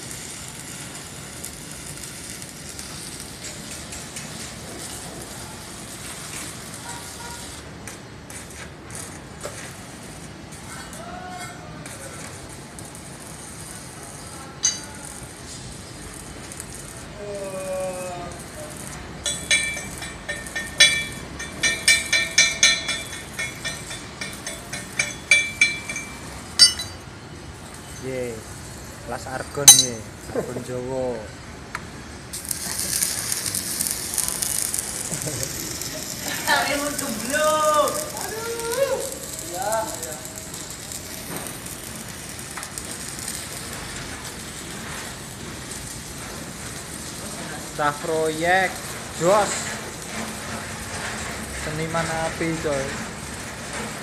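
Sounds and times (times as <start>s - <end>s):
welding arc crackling hiss: 0.0s - 54.0s
metal tool tapping on steel: 14.6s - 15.0s, 19.2s - 27.0s, 29.7s - 30.0s.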